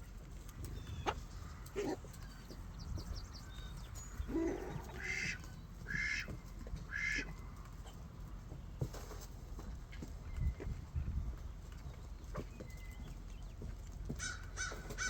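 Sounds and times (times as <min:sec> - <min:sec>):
rough bird calls: 0:00.5 - 0:07.5, 0:12.2 - 0:15.0.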